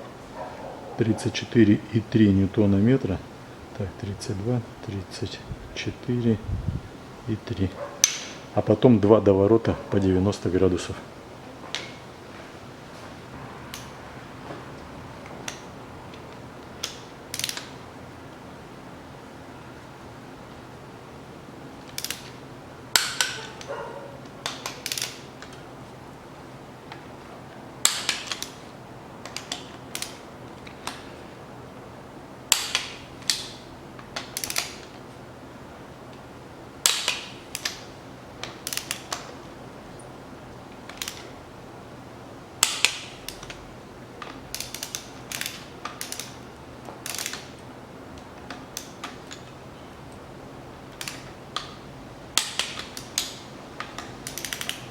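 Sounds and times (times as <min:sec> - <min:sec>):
sharp torque wrench click: 0:16.8 - 0:17.7, 0:21.9 - 0:23.7, 0:24.4 - 0:25.5, 0:27.8 - 0:28.6, 0:29.2 - 0:30.2, 0:32.5 - 0:33.6, 0:34.2 - 0:34.9, 0:36.8 - 0:39.2, 0:40.9 - 0:41.3, 0:42.6 - 0:43.6, 0:44.5 - 0:46.4, 0:47.0 - 0:47.6, 0:51.0 - 0:51.8, 0:52.4 - 0:54.9
torque wrench ratchet clicks: 0:16.8 - 0:17.7, 0:21.9 - 0:22.3, 0:24.4 - 0:25.2, 0:34.2 - 0:34.9, 0:38.4 - 0:39.2, 0:40.9 - 0:41.3, 0:44.5 - 0:46.4, 0:47.0 - 0:47.6, 0:52.4 - 0:54.9.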